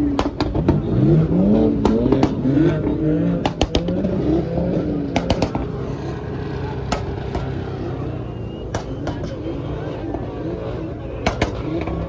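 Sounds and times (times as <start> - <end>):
car engine running: 0.0 - 12.0
muffled voices: 0.0 - 12.0.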